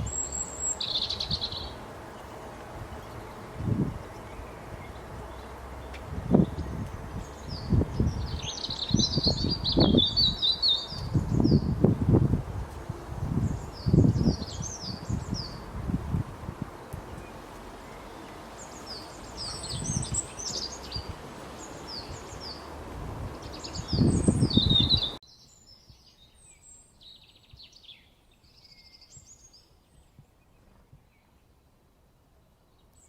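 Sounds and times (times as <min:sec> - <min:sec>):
low rumbling noise: 0:00.0 - 0:25.2
songbirds chirping: 0:00.0 - 0:33.0.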